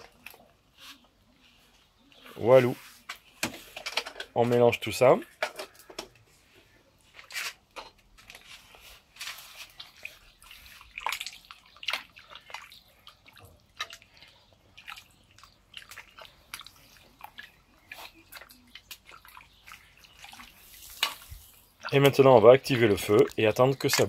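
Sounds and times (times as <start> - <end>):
water splashing and sloshing: 5.3 - 24.0.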